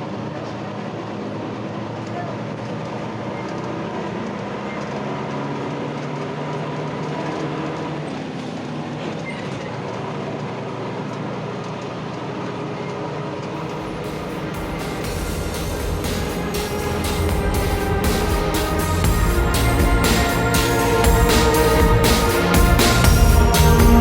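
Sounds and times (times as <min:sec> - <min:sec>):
bus diesel engine running: 0:00.0 - 0:24.0
deep rumble: 0:13.6 - 0:24.0.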